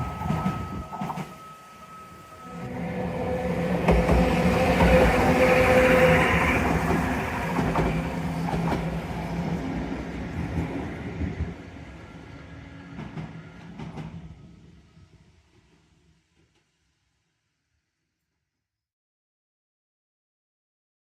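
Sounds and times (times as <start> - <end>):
tram running past: 0.0 - 14.9.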